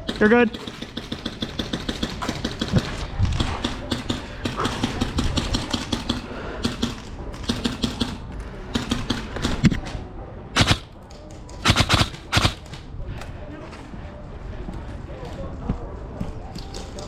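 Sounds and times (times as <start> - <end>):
airsoft guns firing: 0.0 - 9.8, 10.6 - 11.0, 11.6 - 12.9.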